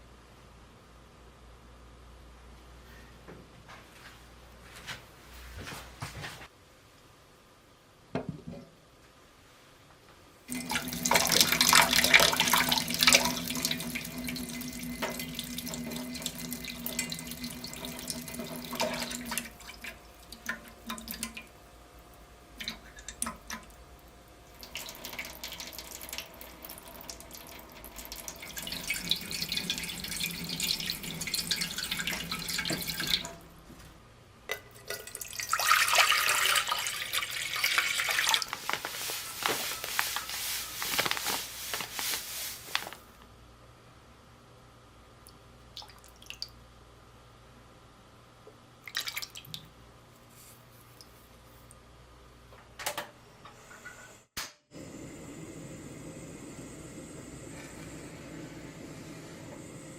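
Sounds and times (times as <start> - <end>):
tap water splashing into container: 24.6 - 33.4, 48.9 - 49.7.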